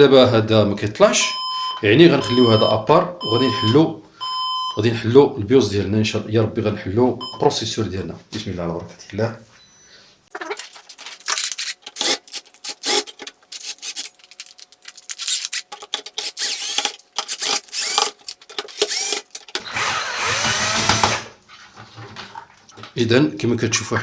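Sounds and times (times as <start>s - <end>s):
squeaky rubbing and scraping: 10.3s - 21.2s
plastic and metal clicks: 10.6s - 19.7s.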